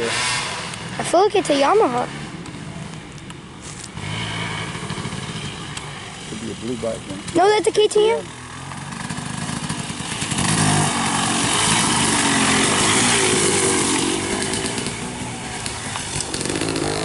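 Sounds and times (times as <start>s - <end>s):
dirt bike engine revving: 0.0s - 2.9s, 3.9s - 17.0s.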